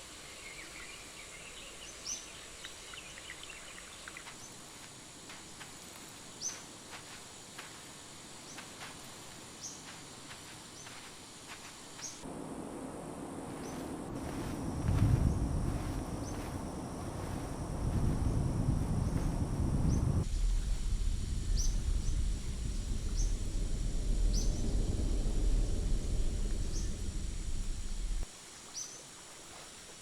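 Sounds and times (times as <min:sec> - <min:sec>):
high insect drone: 0:00.2 - 0:28.3
low rumbling noise: 0:12.2 - 0:28.2.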